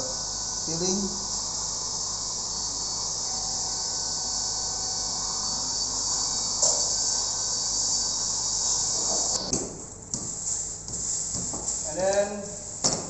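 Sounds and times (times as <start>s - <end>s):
high-pitched chirring drone: 0.0s - 9.5s.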